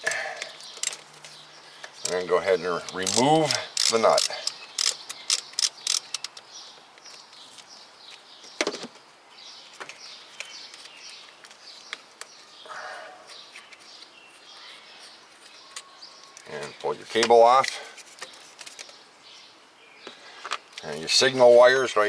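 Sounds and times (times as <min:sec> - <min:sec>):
birds chirping: 0:00.0 - 0:22.0
metallic wrench clicks: 0:02.8 - 0:06.4.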